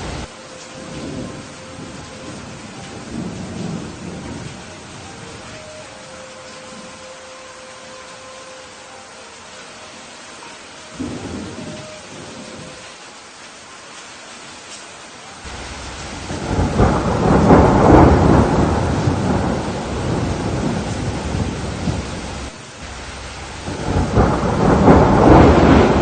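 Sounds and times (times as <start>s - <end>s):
thunder rumbling: 0.0s - 7.0s, 11.0s - 12.9s, 15.4s - 26.0s
steady rain: 0.0s - 26.0s.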